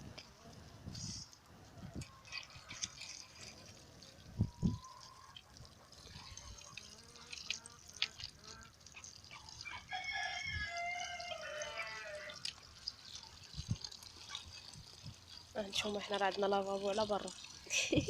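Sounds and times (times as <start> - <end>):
rooster crowing: 9.6 - 12.4.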